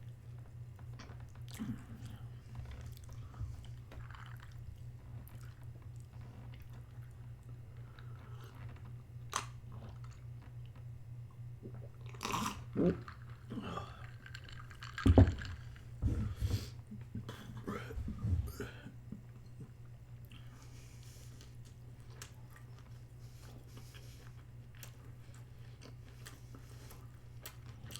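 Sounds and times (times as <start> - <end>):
steady low hum: 0.0 - 27.9
person chewing food: 0.4 - 10.9, 11.6 - 18.8, 19.6 - 27.9
food crunching: 11.7 - 15.9.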